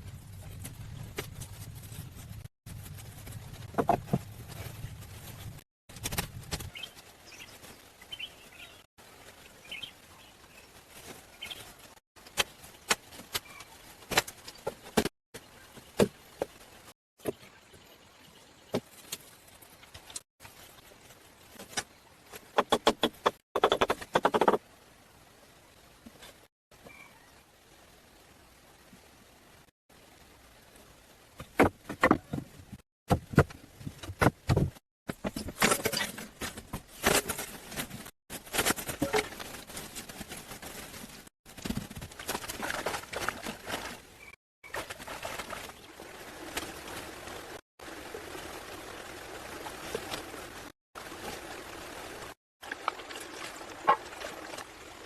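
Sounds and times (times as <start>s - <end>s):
faint bird chirps: 13.4s - 13.8s, 26.8s - 27.4s.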